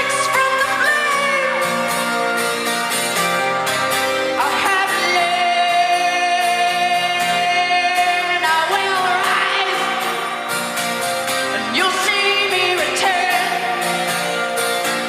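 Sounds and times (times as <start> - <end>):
woman singing: 0.0 - 1.8, 4.4 - 10.2, 11.6 - 14.1
live band playing: 0.0 - 15.0.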